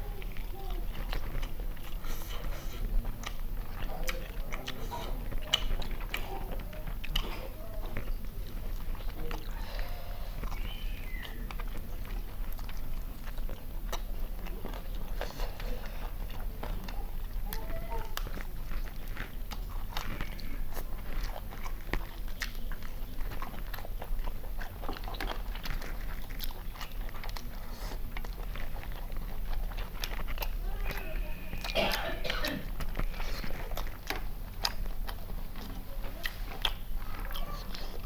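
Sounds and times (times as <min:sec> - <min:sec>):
low steady hum: 0:00.0 - 0:38.0
people chewing food: 0:00.0 - 0:38.0
wet mouth clicks and smacks: 0:01.1 - 0:09.5, 0:31.6 - 0:38.0.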